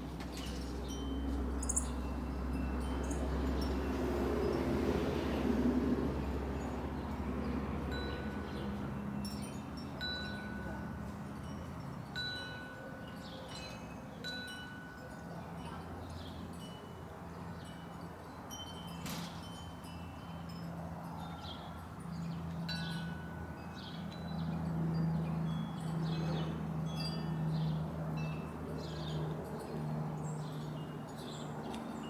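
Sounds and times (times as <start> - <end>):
wind chime ringing: 0.4 - 4.7, 7.9 - 22.1, 22.7 - 29.8.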